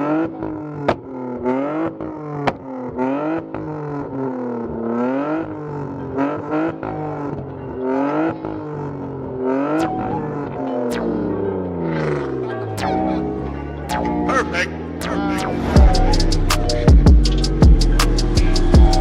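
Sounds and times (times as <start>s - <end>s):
car engine revving in blips: 0.0s - 19.0s
exhaust pops and bangs: 0.8s - 1.2s, 1.8s - 3.0s.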